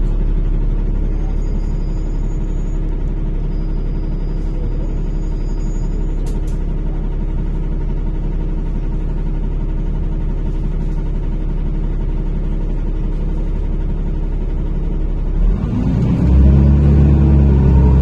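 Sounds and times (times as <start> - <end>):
bus engine running and revving: 0.0 - 18.0.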